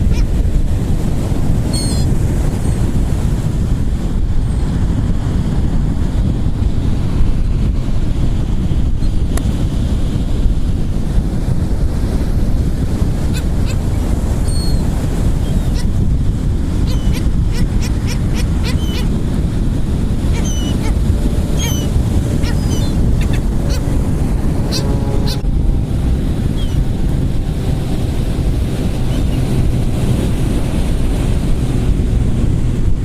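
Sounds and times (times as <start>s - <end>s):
gulls squawking: 0.0s - 0.3s, 1.7s - 2.1s, 13.3s - 15.9s, 16.8s - 19.2s, 20.2s - 25.4s, 26.5s - 26.8s
surf: 0.0s - 33.0s
wind on microphone: 0.0s - 33.0s.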